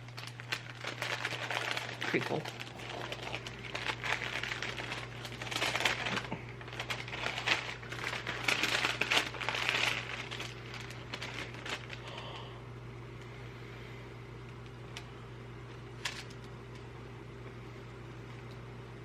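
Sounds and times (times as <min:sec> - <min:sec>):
wrapping crinkling and rustling: 0:00.0 - 0:12.5, 0:15.8 - 0:16.9
steady low hum: 0:00.0 - 0:19.0.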